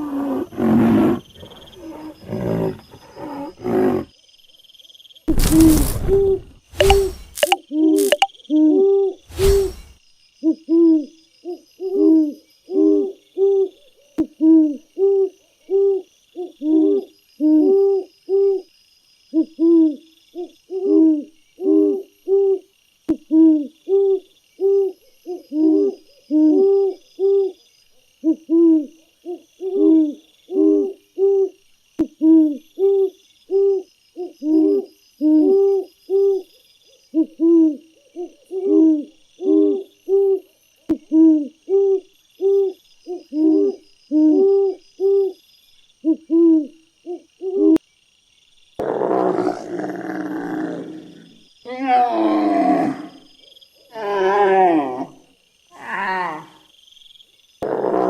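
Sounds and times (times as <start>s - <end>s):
birds hooting: 0.0s - 4.1s.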